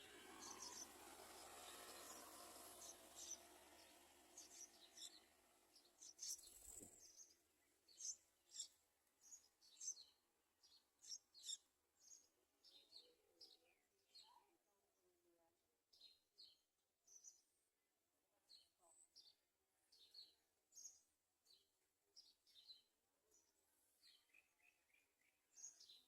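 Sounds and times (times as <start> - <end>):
nestlings chirping faintly: 0.0 - 14.5.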